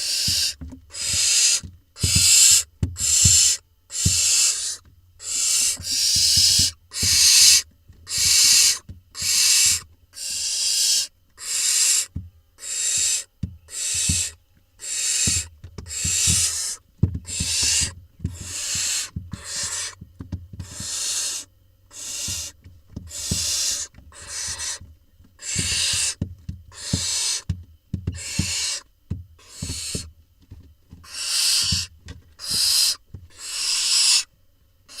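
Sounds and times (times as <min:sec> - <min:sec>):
knocks and scuffles in nest box: 0:00.0 - 0:07.3, 0:15.0 - 0:33.4
owl nestlings rasping begging calls: 0:00.0 - 0:20.0, 0:20.6 - 0:27.5, 0:28.1 - 0:30.1, 0:31.0 - 0:34.3.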